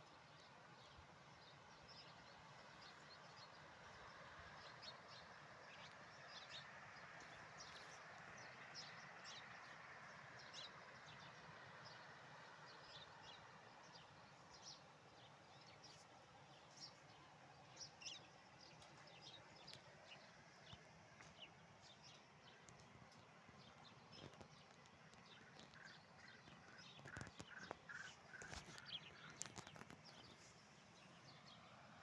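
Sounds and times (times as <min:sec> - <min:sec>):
small birds chirping: 0:10.4 - 0:31.7.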